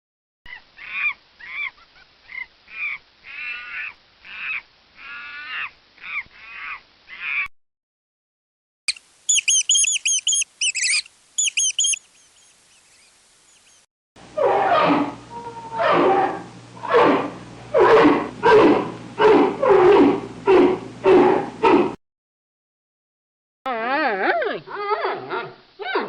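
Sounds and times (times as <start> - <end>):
fast high chirps: 8.9 - 13.8
animal calls rising and falling: 8.9 - 22.0.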